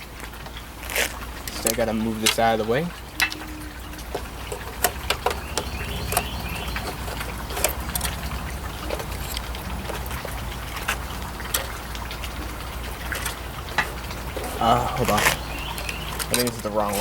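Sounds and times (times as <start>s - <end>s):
computer parts clicking and knocking: 1.5s - 11.8s.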